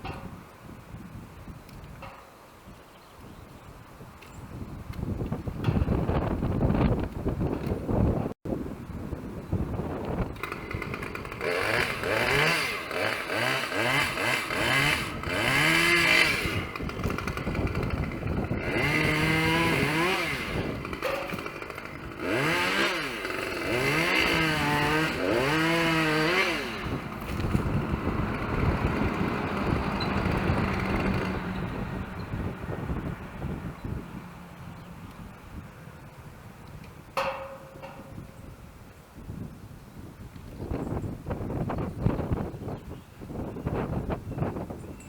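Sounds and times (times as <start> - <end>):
chainsaw revving: 10.2 - 32.2.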